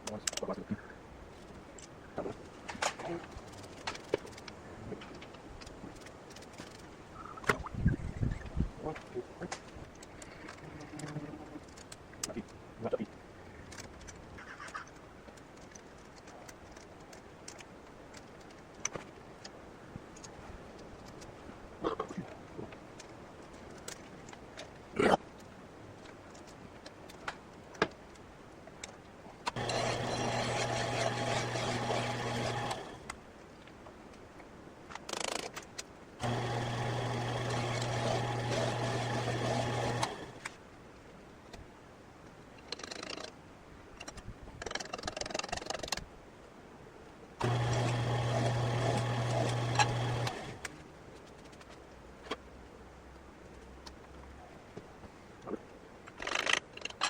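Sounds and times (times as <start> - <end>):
electric machine tool running: 29.6 - 33.1, 36.2 - 40.4, 47.4 - 50.7
small metallic clicks and knocks: 34.9 - 35.9.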